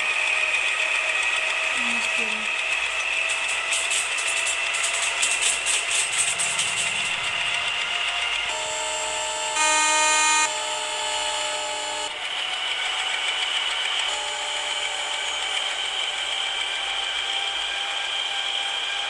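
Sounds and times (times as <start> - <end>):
high-pitched electric whine: 8.5 - 12.2
train horn: 8.5 - 12.2, 14.1 - 15.2.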